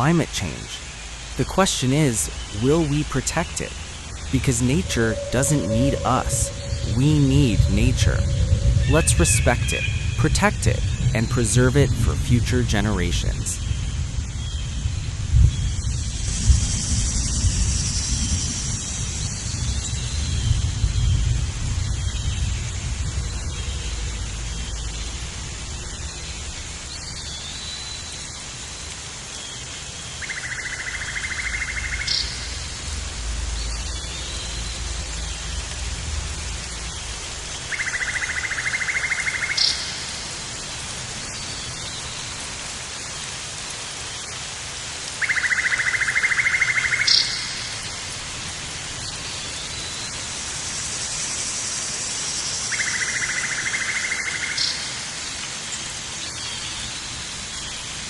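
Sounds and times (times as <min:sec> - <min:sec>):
steady rain: 0:00.0 - 0:58.0
low rumble: 0:02.5 - 0:12.3.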